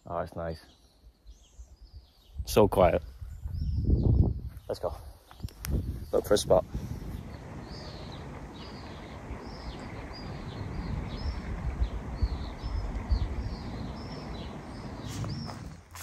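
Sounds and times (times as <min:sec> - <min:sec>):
bird chirping: 0:00.0 - 0:15.9
low steady rumble: 0:06.4 - 0:16.0.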